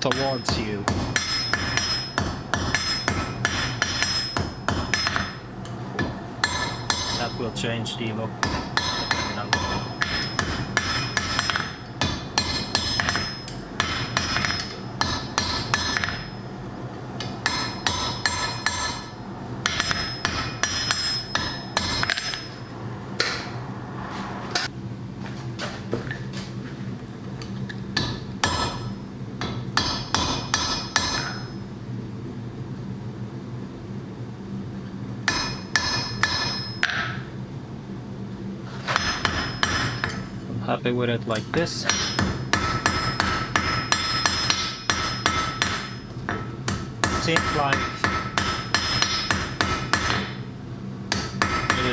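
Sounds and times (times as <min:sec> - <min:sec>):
hammer striking iron on anvil: 0:00.0 - 0:16.5, 0:17.2 - 0:23.5, 0:28.0 - 0:31.6, 0:35.2 - 0:37.3, 0:38.9 - 0:40.4, 0:41.3 - 0:50.4, 0:51.1 - 0:51.9
steady low hum: 0:00.0 - 0:51.9.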